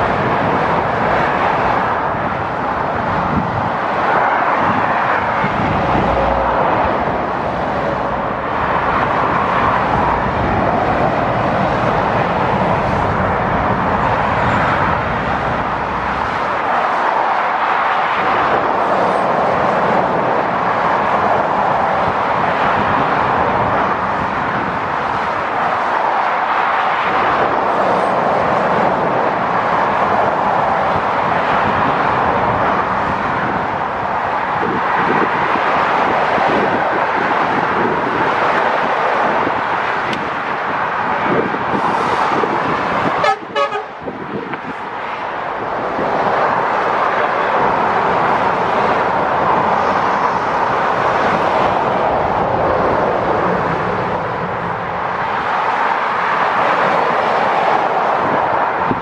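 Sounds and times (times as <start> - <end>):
motorway traffic noise: 0.0 - 59.0
car horn toot: 43.2 - 44.0.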